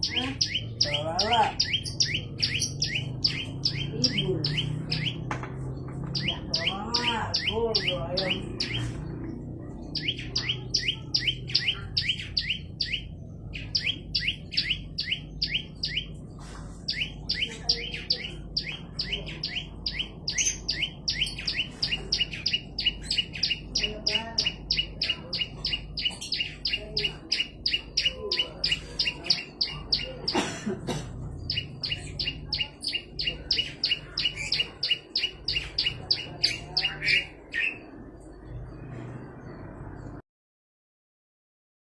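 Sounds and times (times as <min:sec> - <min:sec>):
bird singing sharp chirps: 0:00.0 - 0:30.4, 0:31.3 - 0:40.2.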